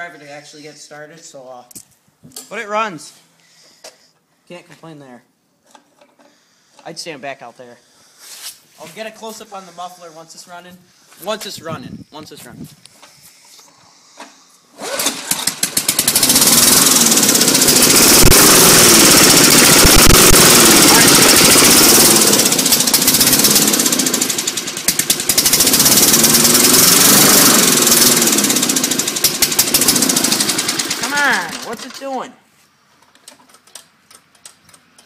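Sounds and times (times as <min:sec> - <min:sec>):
lawn mower engine running: 0:14.7 - 0:32.3.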